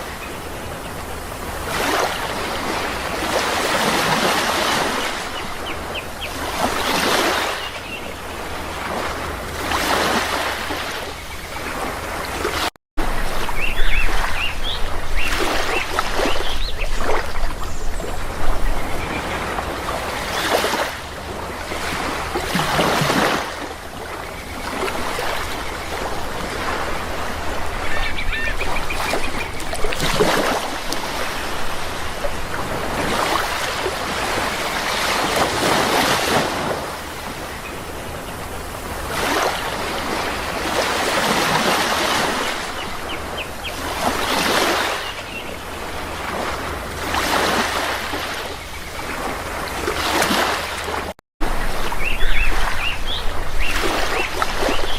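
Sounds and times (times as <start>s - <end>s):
sea waves breaking: 0.0s - 54.9s
birds calling faintly: 9.9s - 35.5s.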